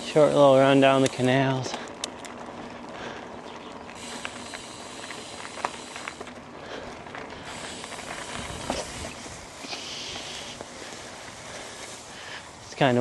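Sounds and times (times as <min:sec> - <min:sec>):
bike tyres rolling over dirt: 0:00.0 - 0:13.0
wind on microphone: 0:08.2 - 0:10.2.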